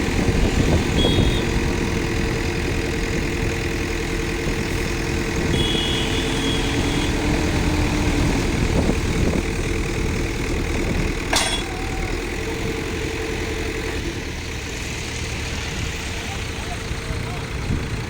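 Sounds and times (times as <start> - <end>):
diesel engine running: 0.0 - 18.0
sharp metallic clank: 11.3 - 11.9.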